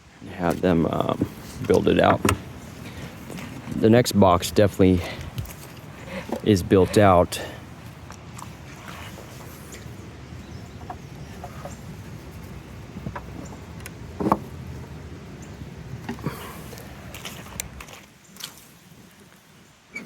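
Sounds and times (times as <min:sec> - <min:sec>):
steady low hum: 0:00.0 - 0:17.8
wooden hive frames clicking: 0:00.4 - 0:07.2, 0:09.7 - 0:15.0.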